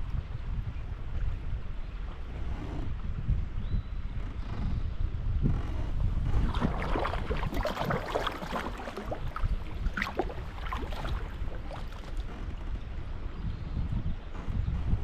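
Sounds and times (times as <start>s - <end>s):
wind buffeting microphone: 0.0s - 15.0s
water splashing and dripping: 6.4s - 12.3s.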